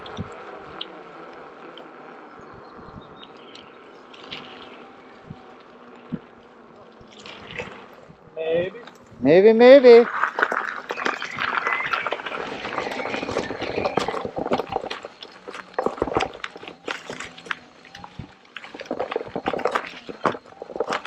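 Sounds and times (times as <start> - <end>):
tyre squelching through wet mud: 3.4 - 8.2, 10.0 - 21.0
twigs and stones snapping: 10.1 - 21.0.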